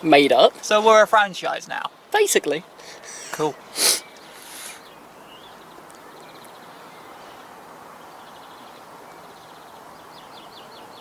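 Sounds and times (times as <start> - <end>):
rapid high chirping: 2.9 - 4.8.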